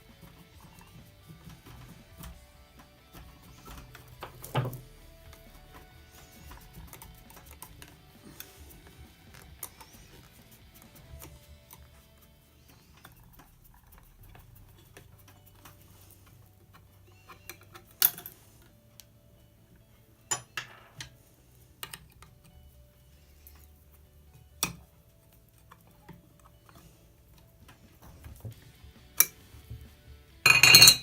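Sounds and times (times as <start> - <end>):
metal parts clicking and knocking: 12.9 - 18.7, 20.3 - 21.2, 21.8 - 22.6.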